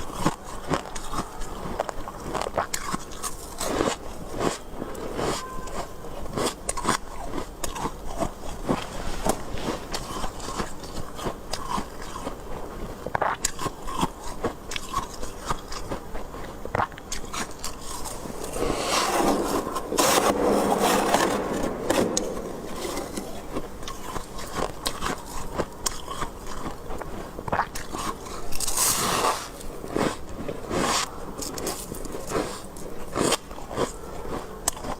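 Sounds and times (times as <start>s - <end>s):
chewing crunchy frost: 0.0s - 34.9s
scraping frost: 17.3s - 25.6s, 28.6s - 29.7s.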